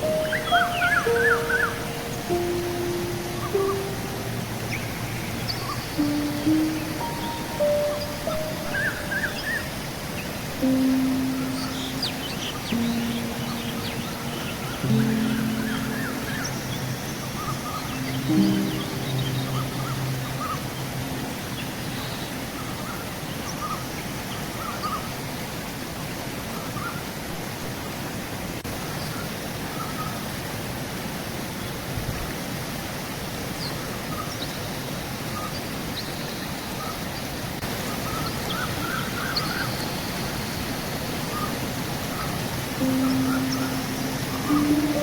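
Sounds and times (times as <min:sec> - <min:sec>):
bird chirps: 0:00.0 - 0:09.7, 0:10.6 - 0:23.8, 0:42.8 - 0:45.0
river water rushing: 0:00.0 - 0:45.0.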